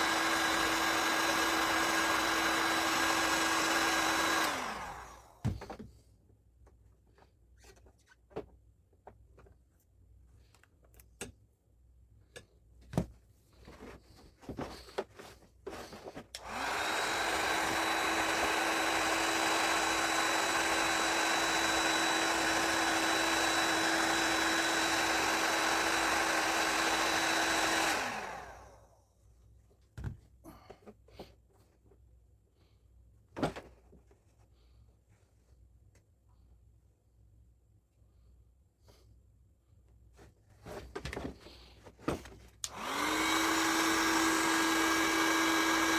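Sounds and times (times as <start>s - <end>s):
heat gun fan whining: 0.0s - 5.8s, 15.8s - 29.0s, 42.6s - 45.9s.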